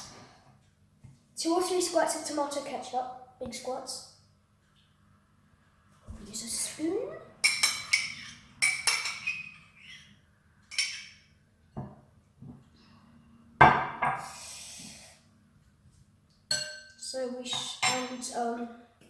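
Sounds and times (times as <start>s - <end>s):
metal spoon tapping glass bowl: 16.5s - 16.9s.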